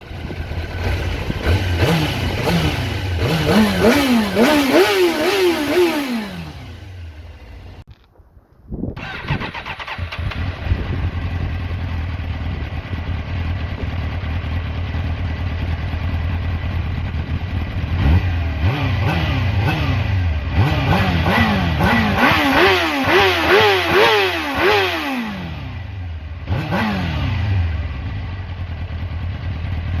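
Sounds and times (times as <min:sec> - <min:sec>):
motorcycle engine idling: 0:00.0 - 0:07.9, 0:10.0 - 0:19.6, 0:27.2 - 0:30.0
motorcycle engine revving: 0:00.0 - 0:07.9, 0:09.0 - 0:30.0.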